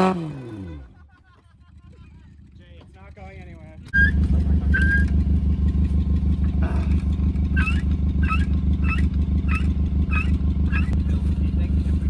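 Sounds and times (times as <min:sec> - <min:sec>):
engine running: 0:03.7 - 0:12.0
short squeak: 0:03.9 - 0:05.2, 0:07.5 - 0:11.0.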